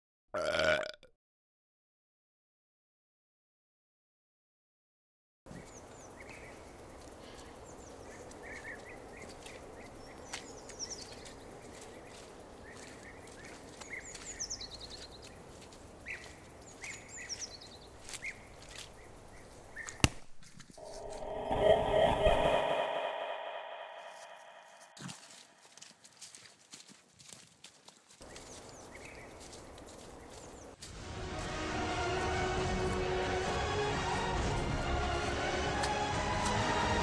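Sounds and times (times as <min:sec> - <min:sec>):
small birds chirping: 0:05.5 - 0:20.2, 0:28.2 - 0:30.8
footsteps on forest floor: 0:05.5 - 0:21.5, 0:24.2 - 0:36.6
steady multi-pitched tone: 0:20.8 - 0:25.1.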